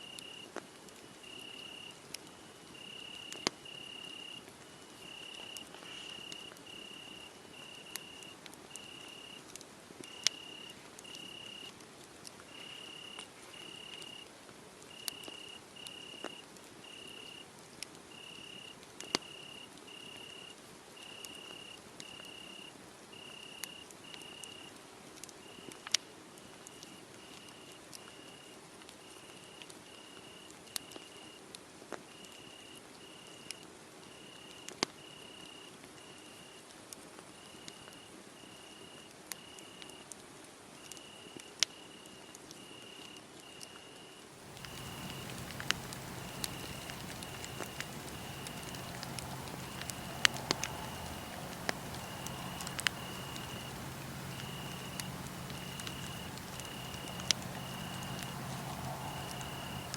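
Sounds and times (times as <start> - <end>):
crickets chirping: 0.0 - 0.4, 1.2 - 2.0, 2.7 - 9.4, 10.1 - 11.7, 12.5 - 14.2, 14.9 - 17.4, 34.1 - 35.6, 41.0 - 41.9, 42.6 - 43.6, 44.3 - 59.9
wood fire crackling: 44.3 - 59.9.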